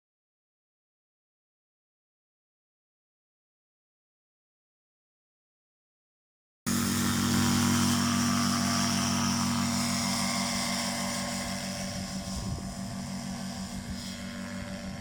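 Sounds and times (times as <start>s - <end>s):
paramotor engine and propeller: 6.7s - 15.0s.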